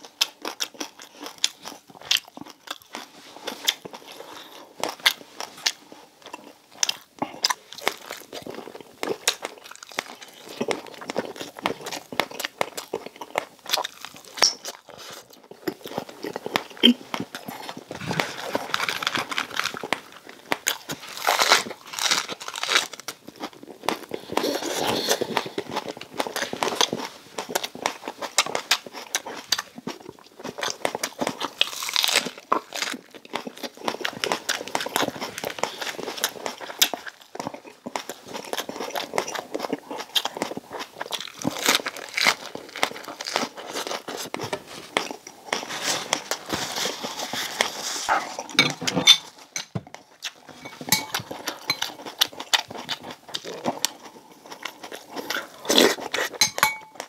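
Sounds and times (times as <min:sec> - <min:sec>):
person chewing crispy food: 0:00.0 - 0:57.0.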